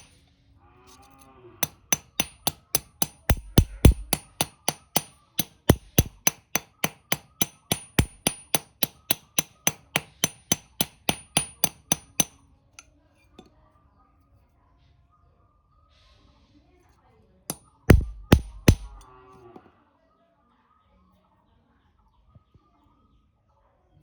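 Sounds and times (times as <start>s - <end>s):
hammer striking metal: 1.6s - 12.4s, 17.5s - 19.0s.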